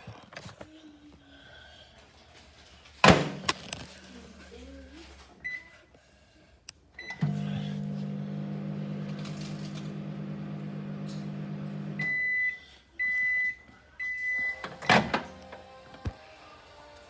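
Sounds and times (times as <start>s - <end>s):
microwave oven humming: 7.0s - 12.3s
microwave keypad beep: 12.0s - 14.6s.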